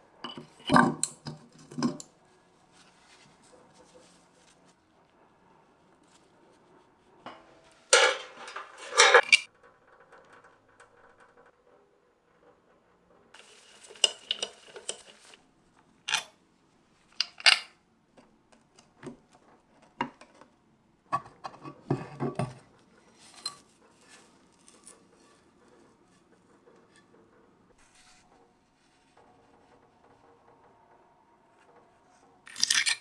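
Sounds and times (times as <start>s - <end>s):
rustling: 7.3s - 9.5s
metal parts clinking: 7.9s - 9.5s, 16.1s - 16.3s, 17.2s - 17.7s, 32.5s - 33.0s.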